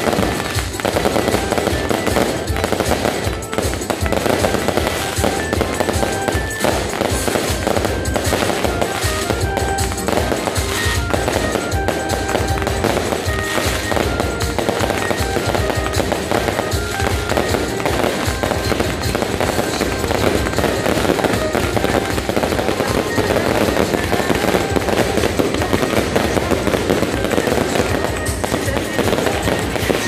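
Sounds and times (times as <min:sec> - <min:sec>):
fireworks bangs and crackles: 0:00.0 - 0:30.0
music: 0:00.0 - 0:30.0.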